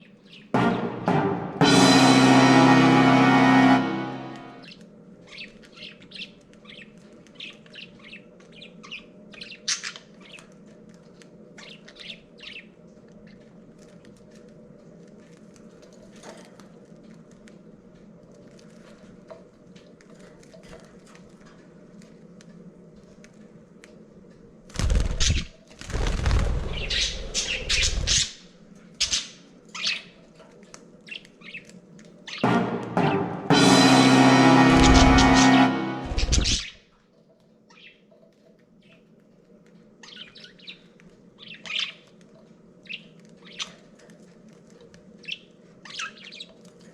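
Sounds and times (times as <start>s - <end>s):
wing flapping and scuffling: 24.6s - 29.0s
budgerigars chirping and squawking: 26.7s - 28.4s, 34.8s - 36.7s.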